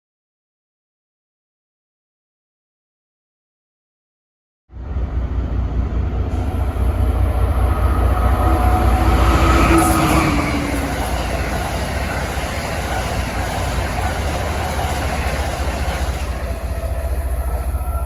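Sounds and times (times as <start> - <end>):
train rumbling past: 4.7 - 18.0.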